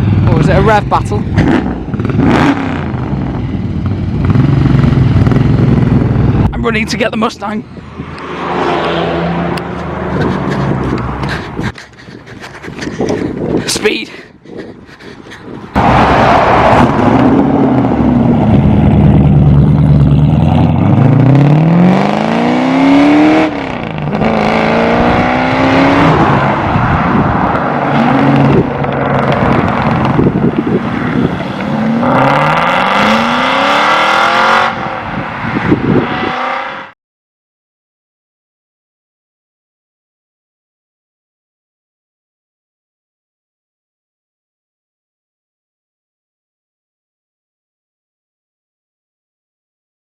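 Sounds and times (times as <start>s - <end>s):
car engine accelerating hard: 0.0s - 6.5s, 15.7s - 36.9s.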